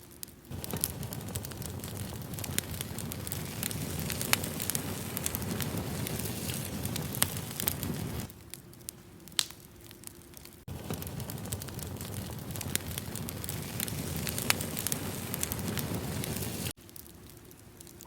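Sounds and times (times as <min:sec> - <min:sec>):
campfire crackling and popping: 0:00.0 - 0:18.0
flames rushing: 0:00.2 - 0:18.0.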